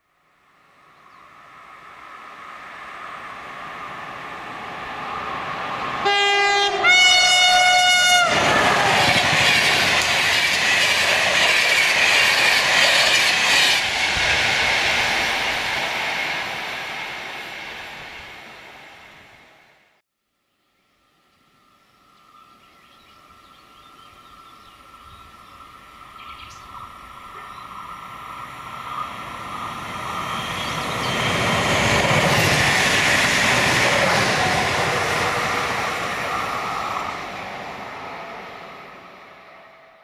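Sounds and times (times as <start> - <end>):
passenger train passing: 0.3 - 20.0, 23.8 - 40.0
train wheels running past: 1.5 - 19.9, 25.6 - 40.0
two-note train horn: 6.0 - 8.4.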